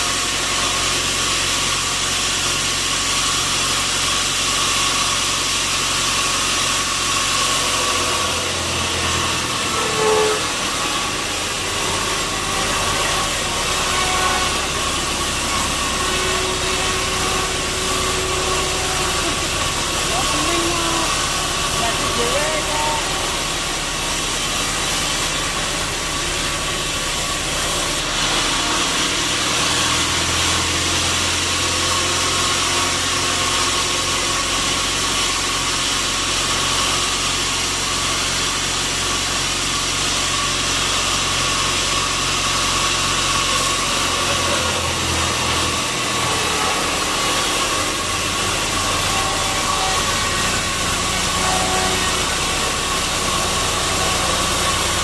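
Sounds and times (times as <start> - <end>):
sawmill machinery whine: 0.0 - 55.0
low motor drone: 5.2 - 35.1, 41.8 - 55.0.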